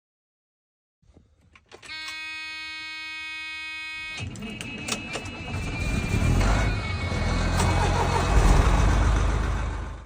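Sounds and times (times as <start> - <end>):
electronic warning buzzer: 1.9 - 5.8
engine rumble: 4.2 - 10.0.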